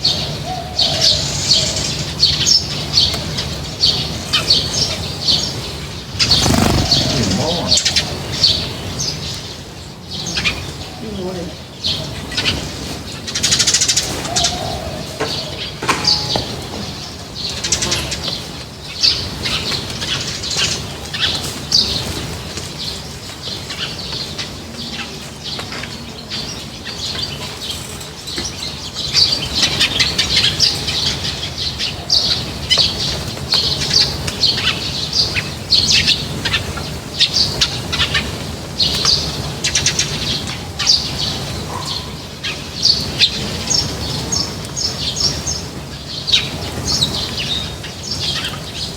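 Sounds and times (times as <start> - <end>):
small birds chirping: 0.0 - 15.4, 16.1 - 48.9
wings fluttering: 6.1 - 7.9.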